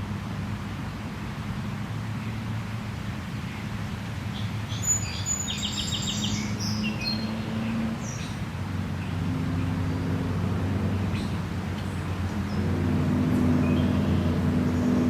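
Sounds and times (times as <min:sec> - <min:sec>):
songbird chirping: 0:03.3 - 0:15.0.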